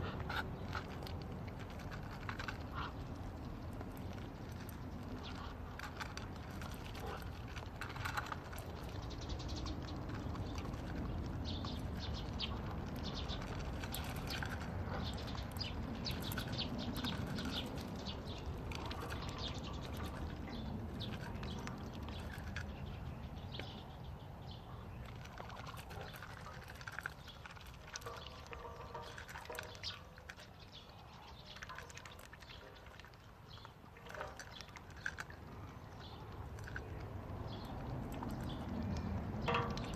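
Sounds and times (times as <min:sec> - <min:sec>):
animals chewing corn: 0:00.0 - 0:39.9
birds chirping: 0:00.0 - 0:39.9.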